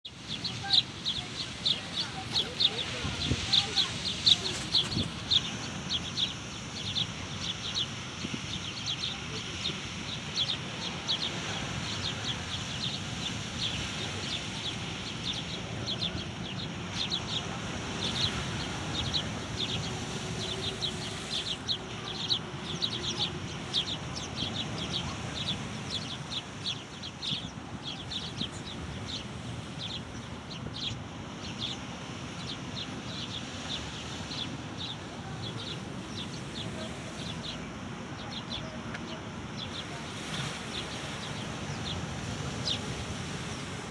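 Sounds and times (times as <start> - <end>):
many birds chirping: 0.1 - 43.9.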